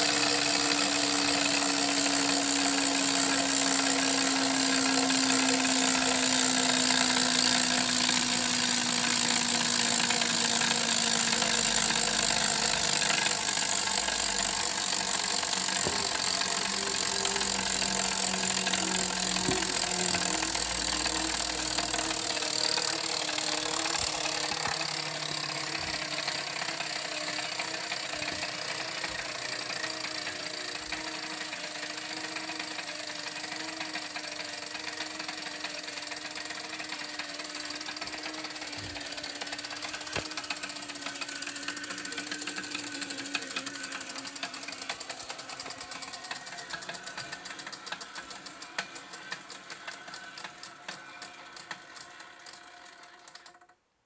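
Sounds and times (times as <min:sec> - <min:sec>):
mechanism whirring with rapid clicking: 0:00.0 - 0:53.8.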